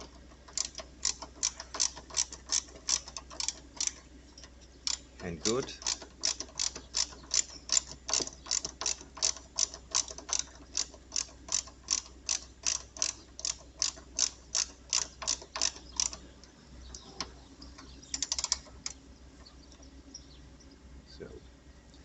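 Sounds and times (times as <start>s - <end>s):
ratchet tool clicking: 0.0s - 16.2s, 18.1s - 19.0s.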